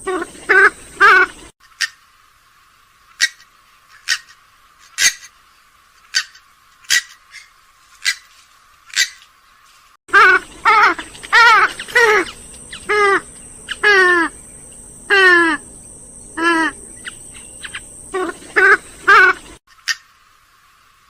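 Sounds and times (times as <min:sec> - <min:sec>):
swamphen wavering calls: 0:00.0 - 0:02.0, 0:03.2 - 0:04.4, 0:06.1 - 0:08.3, 0:08.9 - 0:09.3, 0:10.1 - 0:20.2.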